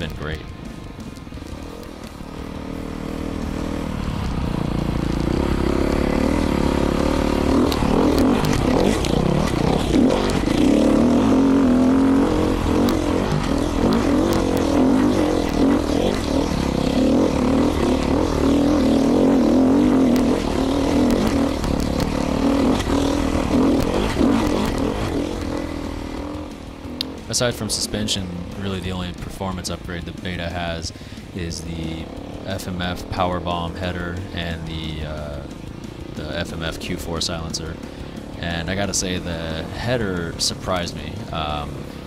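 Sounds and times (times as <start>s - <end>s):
sharp clicks: 0.0s - 2.3s, 19.9s - 26.3s
dirt bike engine revving: 0.0s - 42.0s.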